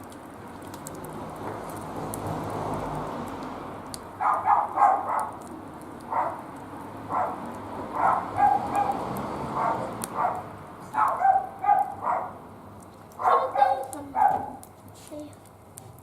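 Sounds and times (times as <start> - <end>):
wood fire crackling: 0.0 - 16.0
dog yipping and barking: 4.2 - 5.4, 6.1 - 6.4, 7.1 - 7.4, 8.0 - 9.0, 9.6 - 12.4, 13.2 - 14.6.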